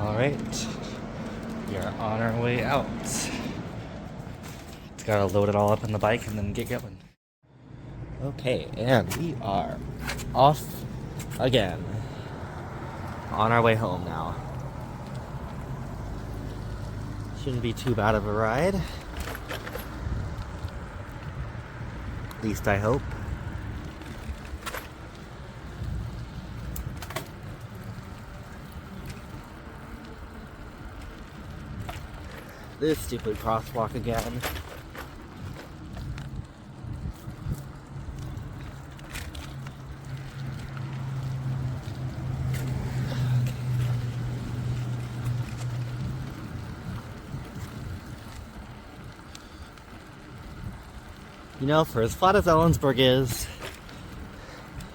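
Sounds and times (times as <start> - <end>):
road rumble: 0.0 - 54.9
wind rushing over microphone: 19.9 - 24.6, 25.2 - 28.1, 35.2 - 39.0, 41.4 - 48.8
wind on microphone: 35.4 - 38.6.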